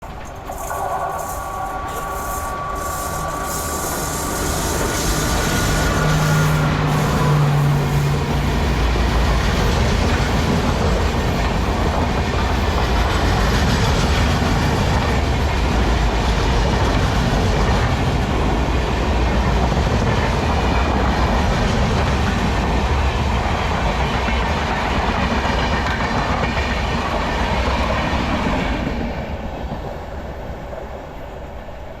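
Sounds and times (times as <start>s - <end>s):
train wheels rushing on rail: 0.0s - 32.0s
clickety-clack of wheels: 4.6s - 29.0s.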